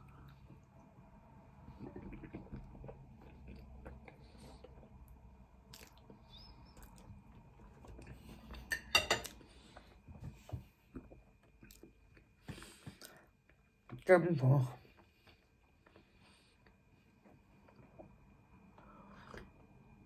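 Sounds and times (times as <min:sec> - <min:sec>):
chewing and mouth noises: 0:01.6 - 0:09.4, 0:10.9 - 0:13.6.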